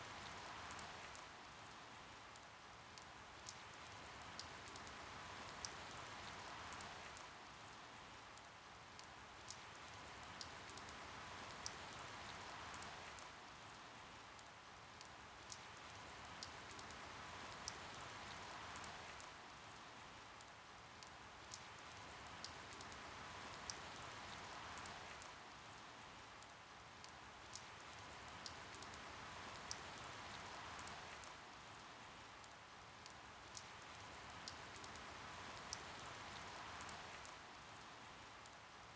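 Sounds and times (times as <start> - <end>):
steady rain with ticking drops: 0.0 - 38.9.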